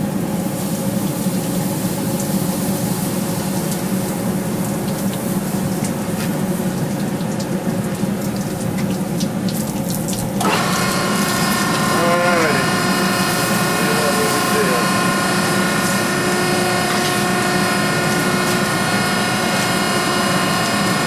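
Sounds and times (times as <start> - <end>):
low hum: 9.6 - 21.0
forge rushing noise: 10.4 - 21.0.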